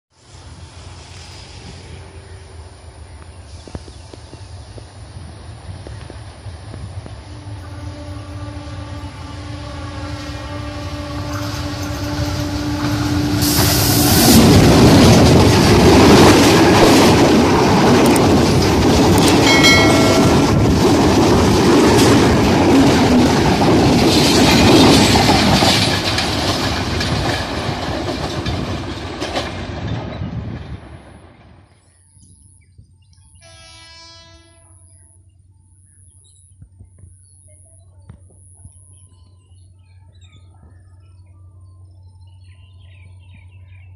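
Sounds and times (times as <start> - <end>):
train rumbling past: 0.1 - 43.9
train horn: 7.1 - 14.4, 33.4 - 35.2
wheels clattering over rail joints: 11.2 - 31.8.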